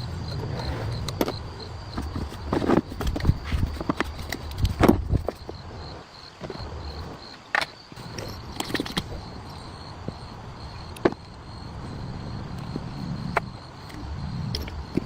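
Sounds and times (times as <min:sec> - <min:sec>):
insect trill: 0:00.0 - 0:15.0
tools and parts clinking: 0:00.9 - 0:05.5, 0:07.5 - 0:09.6.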